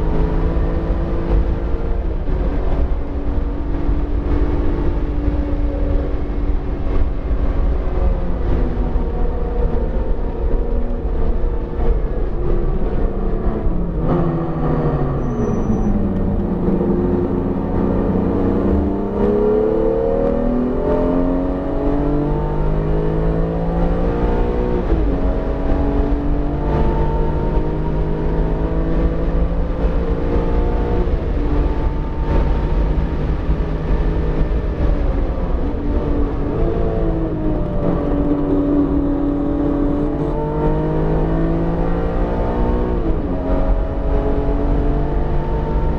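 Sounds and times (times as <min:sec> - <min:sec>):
car engine revving: 0:00.0 - 0:45.9
road and tyre noise: 0:00.0 - 0:45.9.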